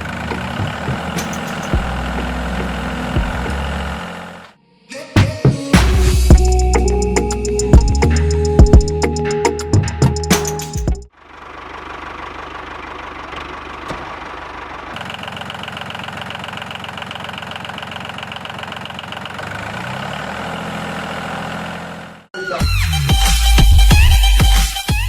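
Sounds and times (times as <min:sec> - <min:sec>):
small engine running: 0:00.0 - 0:04.6, 0:11.1 - 0:22.3.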